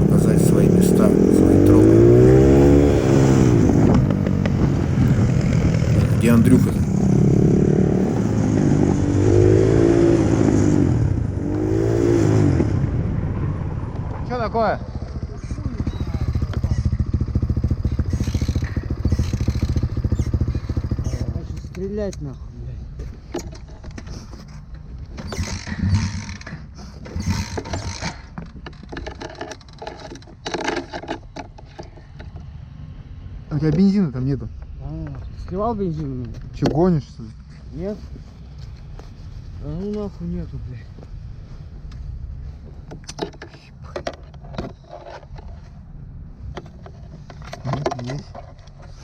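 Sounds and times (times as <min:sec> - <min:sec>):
pit bike engine revving: 0:00.0 - 0:21.6
pit bike kick-started: 0:15.4 - 0:21.8.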